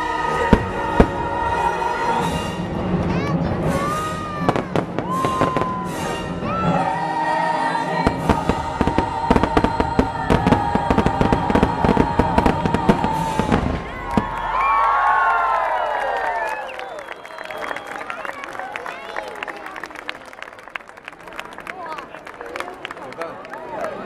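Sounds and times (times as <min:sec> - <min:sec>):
show music: 0:00.0 - 0:15.2
crowd voices: 0:00.0 - 0:24.0
fireworks bangs and crackles: 0:02.2 - 0:06.3, 0:08.0 - 0:14.6.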